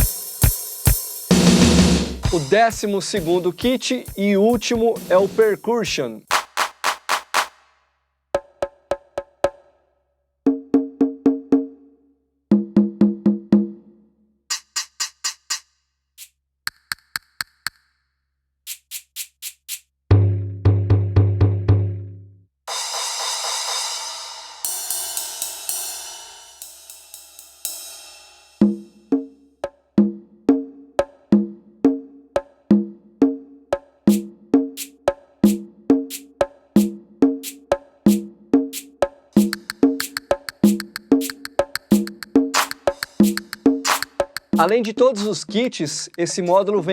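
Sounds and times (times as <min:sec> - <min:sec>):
quick drum hits: 0:00.0 - 0:02.8, 0:06.3 - 0:07.6, 0:38.8 - 0:46.3
wood-block-like strikes: 0:06.3 - 0:07.6, 0:14.5 - 0:18.1, 0:18.7 - 0:21.3, 0:34.1 - 0:46.6.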